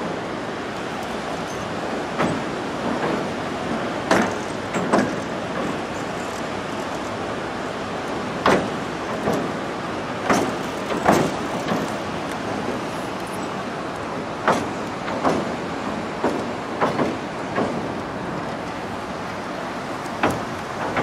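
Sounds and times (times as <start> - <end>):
train clunks on bridge: 0.0 - 21.0
wheels rumbling on rails: 0.0 - 21.0.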